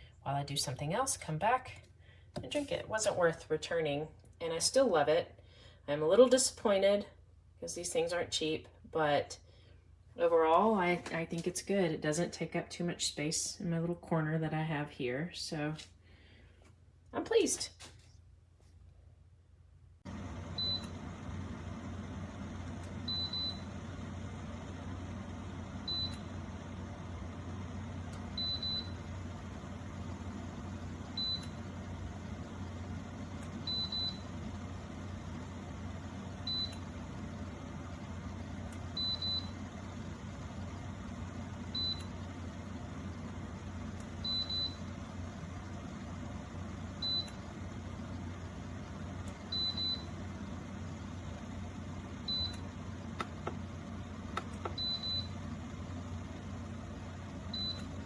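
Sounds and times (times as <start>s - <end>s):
steady low hum: 19.2s - 58.0s.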